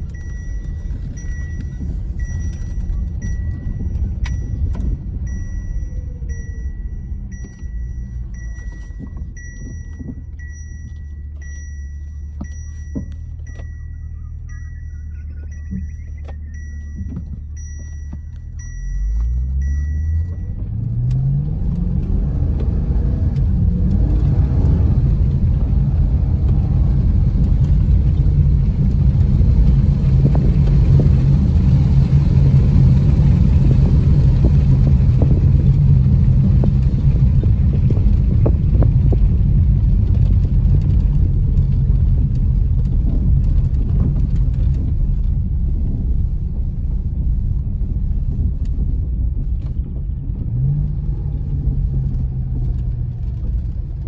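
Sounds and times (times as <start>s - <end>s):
electronic chime beeps: 0.0s - 20.6s
car engine accelerating: 0.0s - 54.0s.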